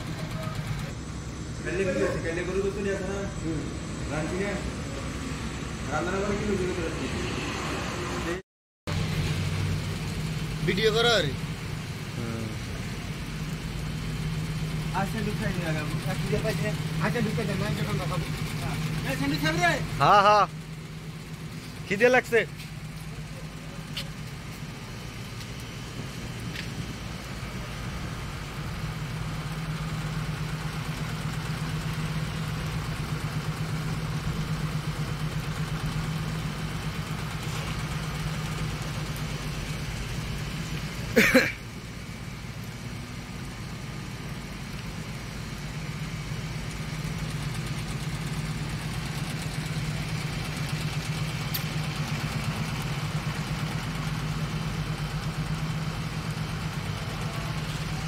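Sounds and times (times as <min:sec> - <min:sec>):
car engine idling: 0:00.0 - 0:07.3, 0:08.2 - 0:58.0.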